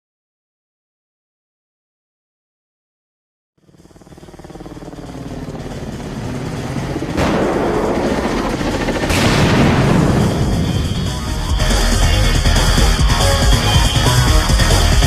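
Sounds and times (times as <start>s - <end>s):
helicopter rotor: 3.6s - 15.0s
heavy cinematic blasts: 5.1s - 15.0s.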